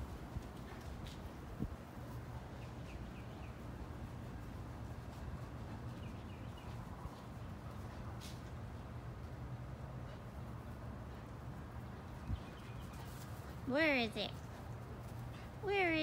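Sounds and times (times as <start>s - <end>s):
bird chirping: 12.0s - 13.1s.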